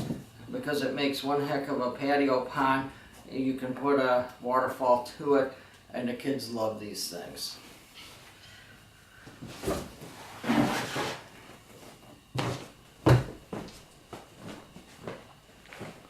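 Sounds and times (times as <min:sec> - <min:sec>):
scraping rustle: 0:09.5 - 0:12.0
knocks and thumps: 0:12.3 - 0:15.2.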